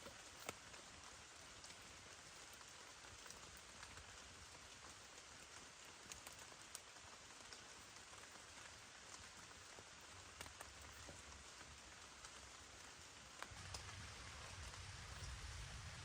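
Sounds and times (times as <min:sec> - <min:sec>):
steady rain: 0:00.0 - 0:16.0
raindrop taps: 0:09.0 - 0:12.5, 0:13.3 - 0:16.0.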